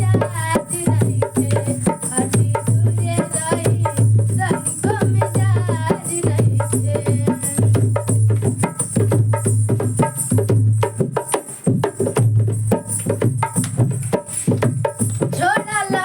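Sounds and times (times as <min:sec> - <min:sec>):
hand drums and percussion: 0:00.0 - 0:16.0.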